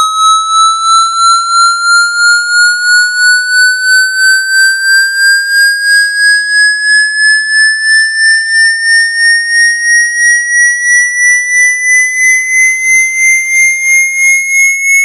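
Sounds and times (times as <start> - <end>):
pulsing electronic tone: 0.0 - 10.2.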